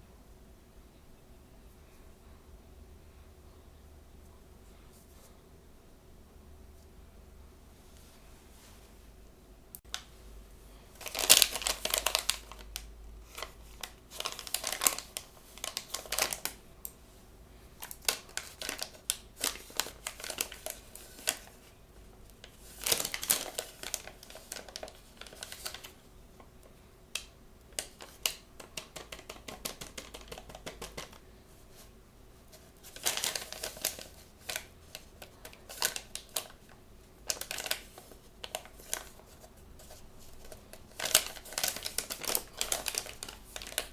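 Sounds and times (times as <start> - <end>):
packaging crinkling: 11.0 - 16.6, 17.8 - 26.5, 27.2 - 31.8, 32.5 - 43.9
small clicks and taps: 27.1 - 31.2.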